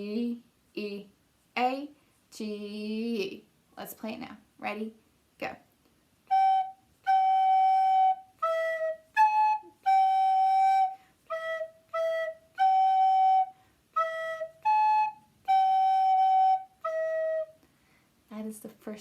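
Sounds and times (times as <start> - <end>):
recorder melody: 6.3 - 17.5.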